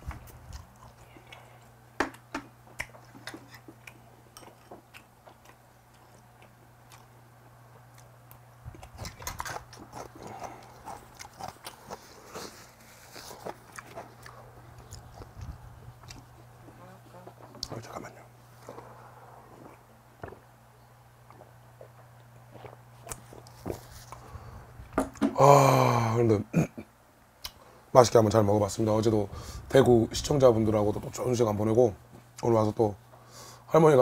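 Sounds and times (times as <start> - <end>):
faint low hum: 0.0 - 34.0
person chewing wetly: 0.2 - 7.2, 7.8 - 17.8, 21.2 - 24.3.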